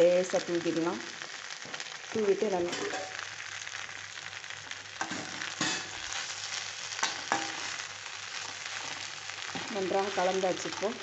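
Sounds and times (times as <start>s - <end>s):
food sizzling in a pan: 0.0s - 11.0s
spoon scraping a pan: 5.0s - 6.3s, 6.9s - 9.9s.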